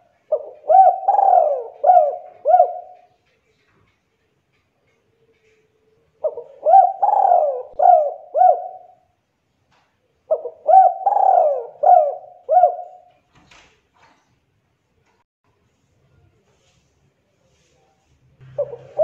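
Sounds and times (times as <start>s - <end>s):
dove cooing: 0.0s - 3.2s, 5.4s - 9.1s, 10.3s - 13.1s, 18.4s - 19.0s.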